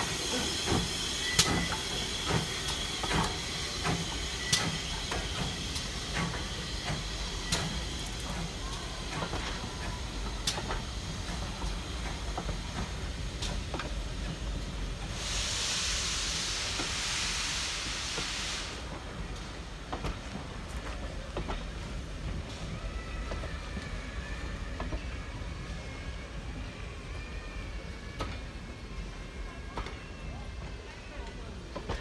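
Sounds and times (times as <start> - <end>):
steam hissing: 0.0 - 19.7.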